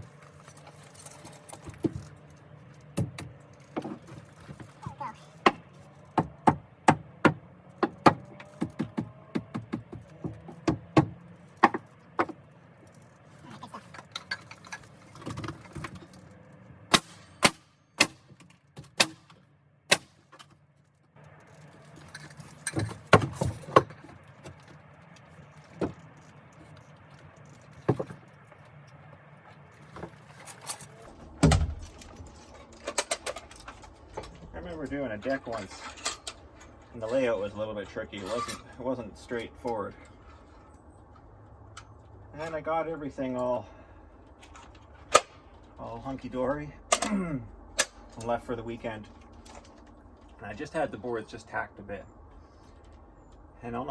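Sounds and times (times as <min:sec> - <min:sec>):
hammer nailing deck boards: 0:06.2 - 0:12.4.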